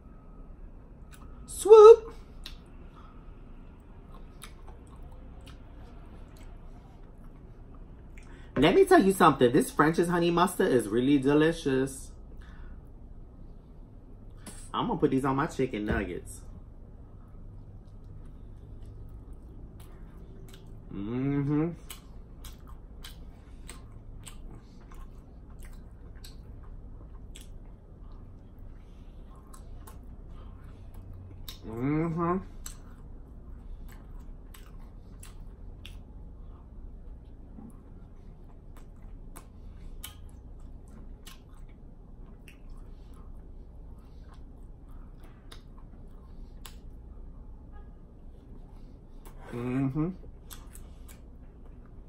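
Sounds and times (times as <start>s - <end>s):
chewing with wet mouth smacks: 2.2s - 8.4s, 16.8s - 47.4s, 48.1s - 49.5s, 50.2s - 52.0s
wet mouth smacks: 50.4s - 51.2s.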